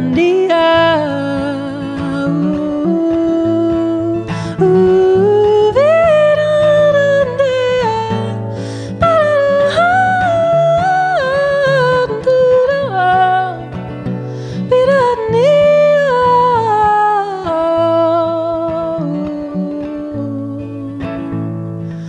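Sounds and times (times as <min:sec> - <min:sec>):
woman singing wordless melody: 0:00.0 - 0:22.0.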